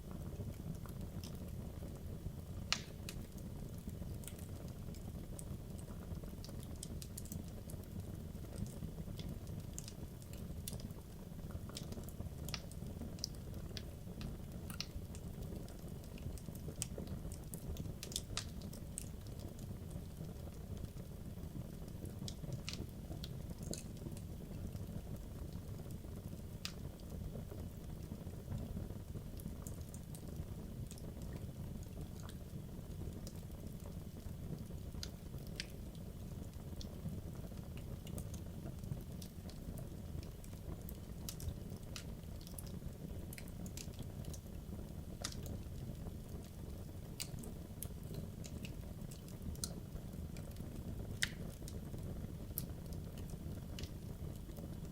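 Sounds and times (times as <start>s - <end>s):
fireplace flames rumbling: 0.0s - 54.9s
wood crackling and popping: 0.0s - 54.9s.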